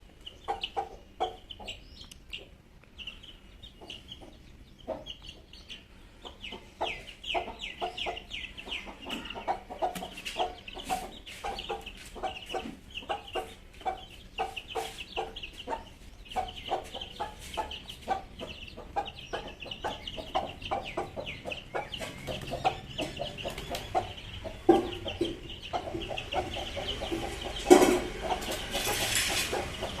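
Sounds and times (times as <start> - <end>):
chicks peeping: 0.0 - 30.0
rapid clucking: 6.2 - 30.0.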